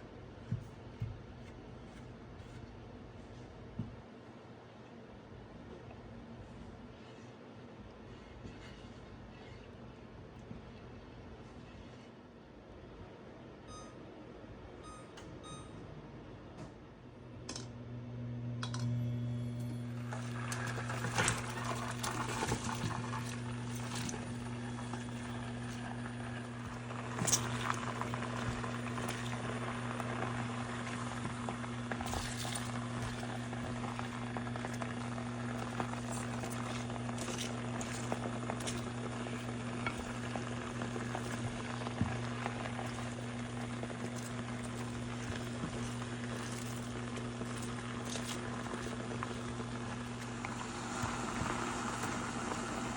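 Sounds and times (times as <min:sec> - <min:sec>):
steady electric hum: 0:13.4 - 0:52.9
short electronic beeps: 0:14.8 - 0:15.8
food simmering in a pan: 0:20.0 - 0:52.9.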